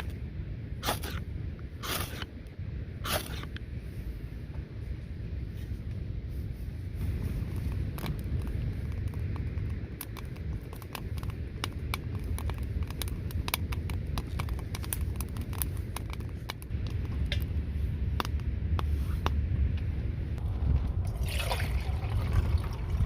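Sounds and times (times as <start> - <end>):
wind buffeting microphone: 0.0 - 23.0
wood fire crackling and popping: 7.1 - 21.4.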